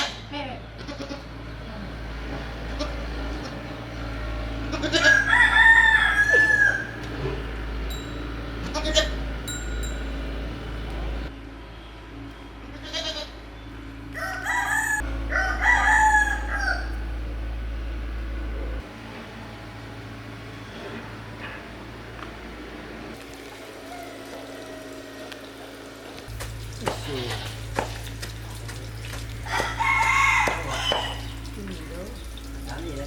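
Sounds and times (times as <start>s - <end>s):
short rooster calls: 4.9s - 7.0s
rooster crowing: 4.9s - 7.2s, 14.1s - 17.2s, 23.6s - 25.8s, 29.4s - 31.4s.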